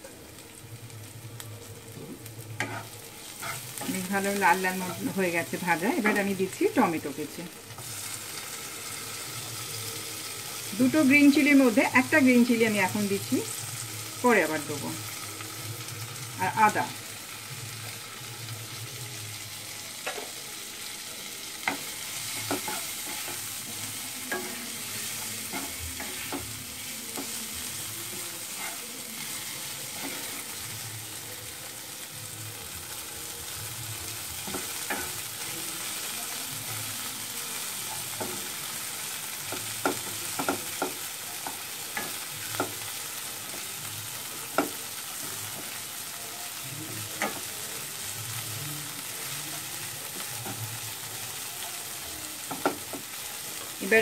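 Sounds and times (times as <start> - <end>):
food sizzling in oil: 0.0 - 54.0.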